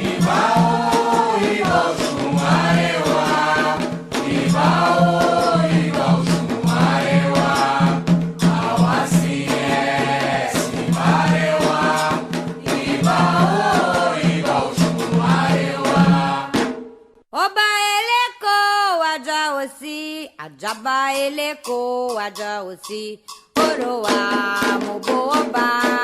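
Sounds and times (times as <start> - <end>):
group singing a chant: 0.0 - 16.7
rhythmic percussion: 0.0 - 17.0, 20.4 - 26.0.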